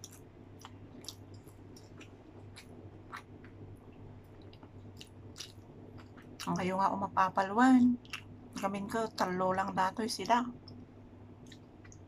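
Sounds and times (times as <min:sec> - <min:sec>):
close-up chewing with mouth smacks: 0:00.0 - 0:06.6, 0:08.0 - 0:08.6, 0:11.4 - 0:12.0.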